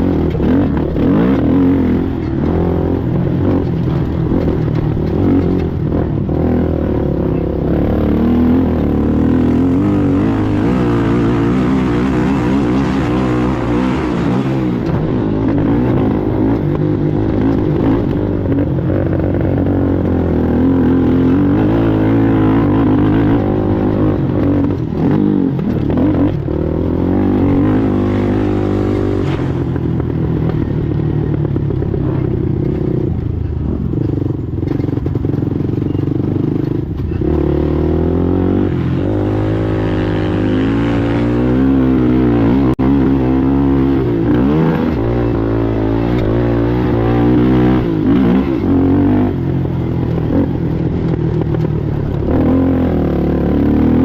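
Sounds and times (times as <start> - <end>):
rattling and scraping over ground: 0.0 - 7.5
atv engine revving: 0.0 - 54.0.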